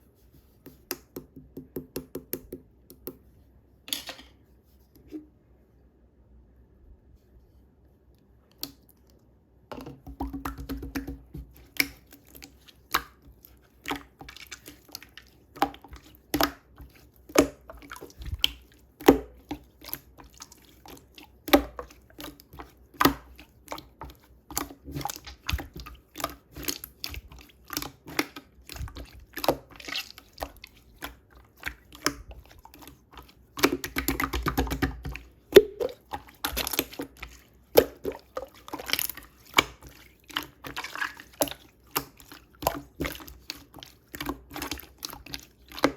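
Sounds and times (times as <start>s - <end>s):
wet squelches and drips: 8.5s - 9.3s, 10.0s - 45.9s.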